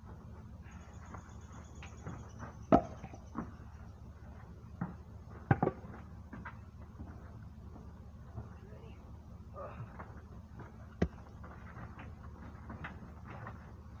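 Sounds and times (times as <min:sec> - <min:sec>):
wooden logs knocking and thudding: 0:02.7 - 0:03.6, 0:04.8 - 0:07.2, 0:09.8 - 0:13.7.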